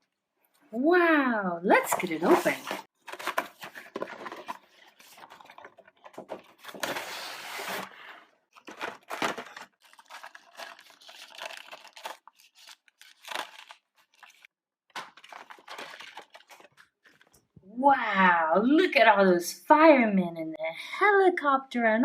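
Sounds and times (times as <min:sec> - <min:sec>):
packaging crinkling and rustling: 0:02.6 - 0:07.9, 0:08.5 - 0:17.5
packaging tearing: 0:08.5 - 0:17.3.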